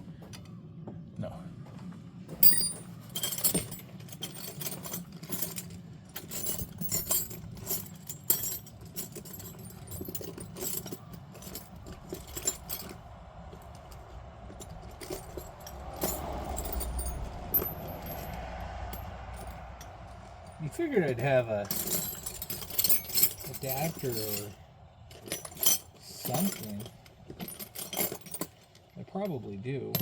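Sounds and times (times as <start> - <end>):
metal tools clinking and rattling: 2.3 - 30.0
low rumble: 11.6 - 23.6.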